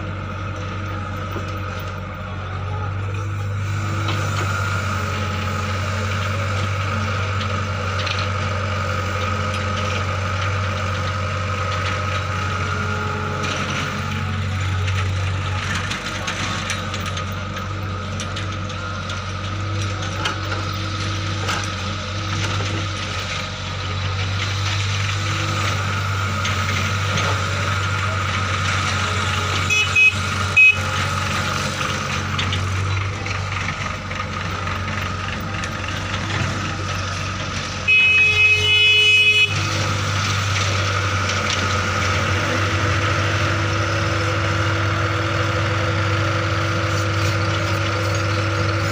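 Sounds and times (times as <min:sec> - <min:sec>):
tractor engine running: 0:00.0 - 0:48.9
horn toots: 0:29.5 - 0:31.1, 0:37.8 - 0:39.9.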